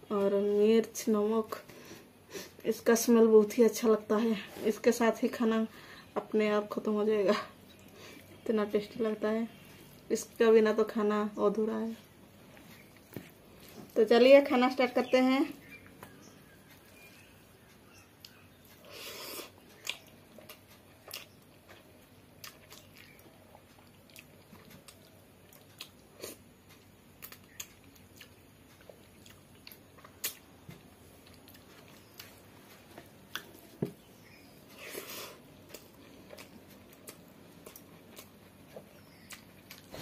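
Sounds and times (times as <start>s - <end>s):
person chewing food: 12.3s - 14.0s, 15.7s - 40.0s.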